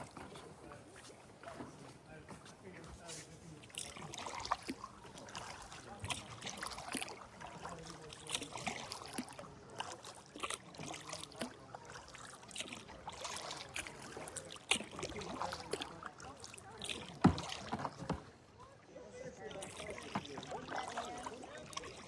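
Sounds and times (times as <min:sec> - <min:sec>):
paddle splashing in water: 0:00.0 - 0:22.0
water drips: 0:03.6 - 0:18.2, 0:19.4 - 0:22.0
sharp splash or knock: 0:08.2 - 0:18.3.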